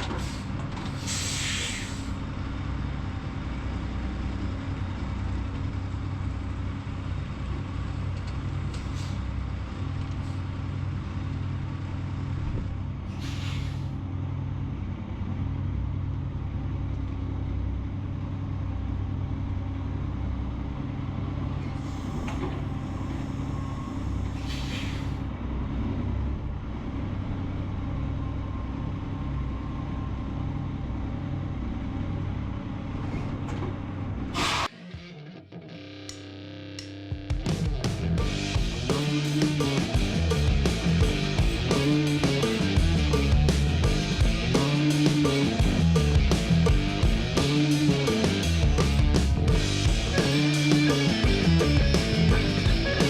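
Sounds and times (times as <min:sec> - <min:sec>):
truck diesel engine running: 0:00.0 - 0:34.6, 0:37.3 - 0:53.0
air brake hiss: 0:00.1 - 0:02.2, 0:08.9 - 0:09.2, 0:13.1 - 0:14.0, 0:21.7 - 0:25.3, 0:34.3 - 0:34.7.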